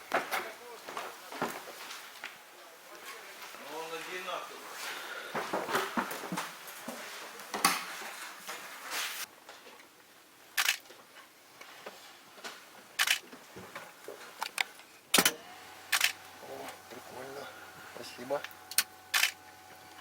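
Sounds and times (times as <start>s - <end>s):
sharp clicks: 10.6s - 10.8s, 13.0s - 13.2s, 14.4s - 16.2s, 18.4s - 19.4s.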